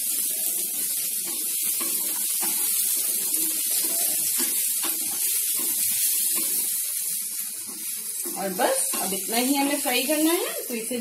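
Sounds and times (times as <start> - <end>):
mushrooms sizzling in oil: 0.0 - 11.0.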